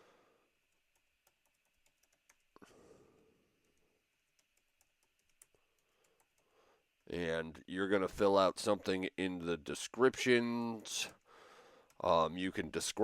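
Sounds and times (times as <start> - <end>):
computer keyboard typing: 0.6 - 2.6, 3.6 - 6.5.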